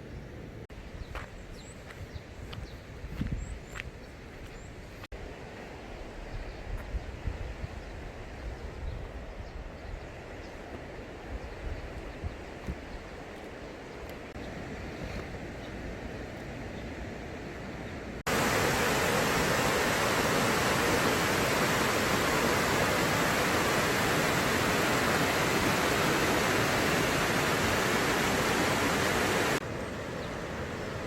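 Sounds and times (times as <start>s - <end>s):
rushing mountain stream: 18.2s - 31.0s
wind hiss: 18.2s - 31.0s.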